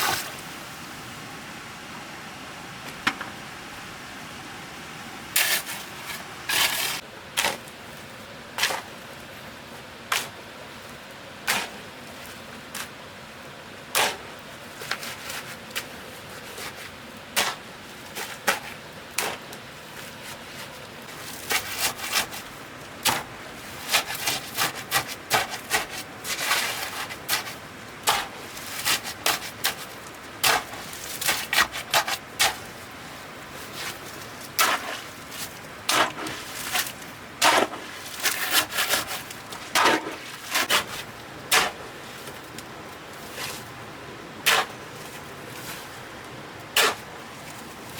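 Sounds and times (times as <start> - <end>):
hand tool scraping cement mix: 5.4 - 7.6, 8.6 - 8.9, 20.2 - 32.8, 33.6 - 42.4, 44.4 - 44.9, 46.7 - 47.1.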